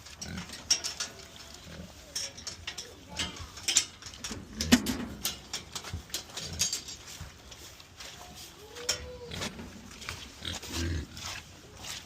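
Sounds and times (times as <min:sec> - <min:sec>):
knocks and clatter: 0:02.2 - 0:07.2
pigs grunting: 0:09.2 - 0:11.4.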